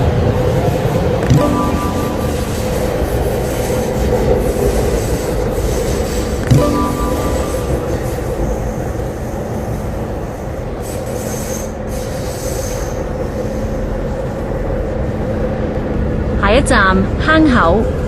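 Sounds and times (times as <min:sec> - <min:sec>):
train wheel rumble on rails: 0:00.0 - 0:18.0
faint high wheel squeal: 0:01.4 - 0:14.2.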